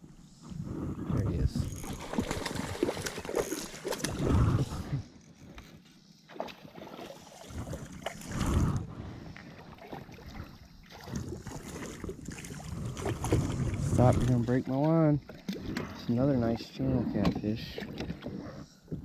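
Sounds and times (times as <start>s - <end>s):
water sloshing around a kayak: 0.2s - 19.0s
wind buffeting the microphone: 0.4s - 2.8s, 11.1s - 14.5s.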